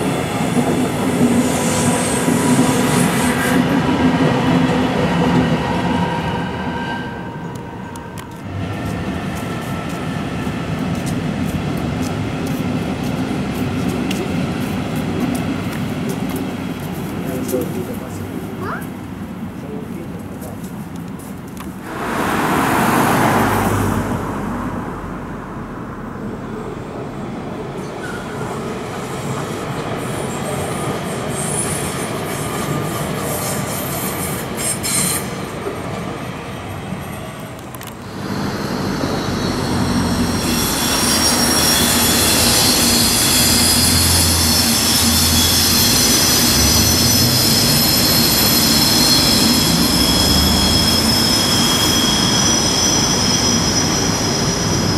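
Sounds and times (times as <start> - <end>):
train wheels squealing: 0.0 - 3.9, 5.2 - 8.3, 27.8 - 35.9, 38.0 - 54.9
electric trains running: 27.3 - 54.9.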